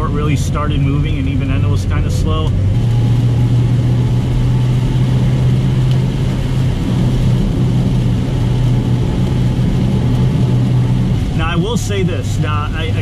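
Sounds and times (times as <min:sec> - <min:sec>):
car engine droning: 0:00.0 - 0:13.0
rain on car: 0:00.0 - 0:13.0
tyres hissing on wet road: 0:02.1 - 0:13.0.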